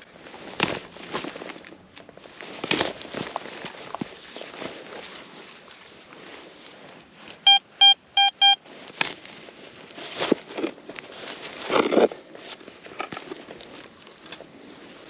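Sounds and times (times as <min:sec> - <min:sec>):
metal detector beeps: 0:07.4 - 0:08.6.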